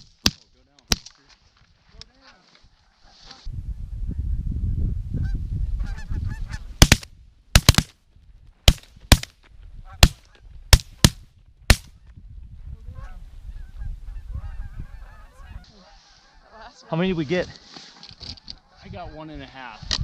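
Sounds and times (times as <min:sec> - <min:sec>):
wind rumble on microphone: 0:03.4 - 0:07.4, 0:09.5 - 0:15.7, 0:18.5 - 0:20.0
shotgun blasts: 0:06.8 - 0:07.9, 0:08.7 - 0:09.3, 0:10.0 - 0:11.9
geese honking: 0:13.0 - 0:17.1.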